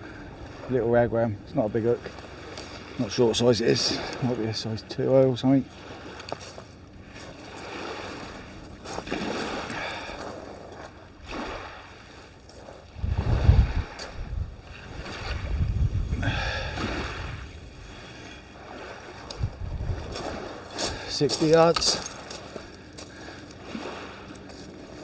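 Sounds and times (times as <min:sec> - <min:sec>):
waves on the shore: 0:00.0 - 0:25.0
wind buffeting the microphone: 0:05.7 - 0:25.0.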